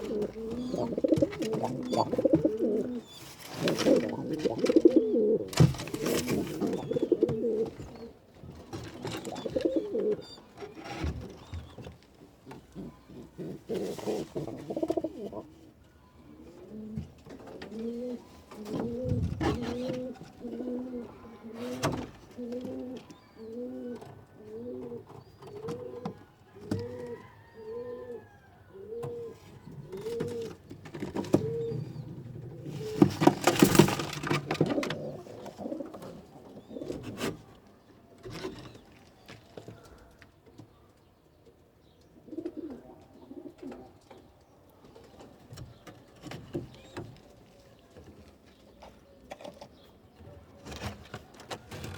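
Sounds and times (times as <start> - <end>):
pigeon cooing: 0.0 - 8.2, 9.0 - 10.8, 12.7 - 15.6, 16.4 - 26.1, 26.7 - 33.9, 42.2 - 44.0
rustling and knocks: 30.0 - 36.2.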